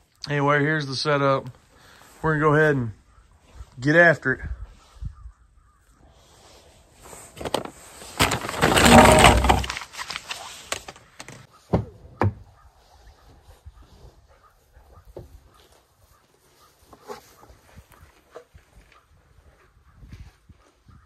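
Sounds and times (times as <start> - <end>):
rough scraping and rattling: 7.0 - 11.5.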